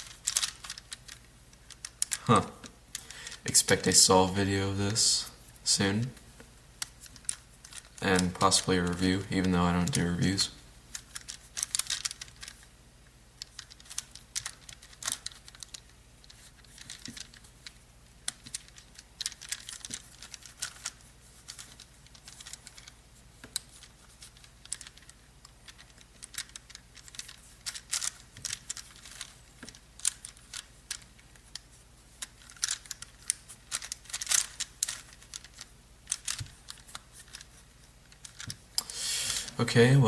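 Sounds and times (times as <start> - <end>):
plastic puzzle clicking: 0.1 - 3.1, 10.9 - 12.6, 32.2 - 37.5, 38.2 - 38.9.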